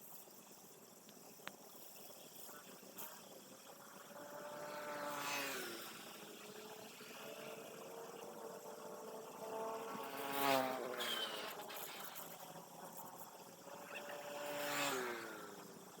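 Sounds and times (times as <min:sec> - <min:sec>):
small-engined vehicles passing: 0:03.6 - 0:16.0.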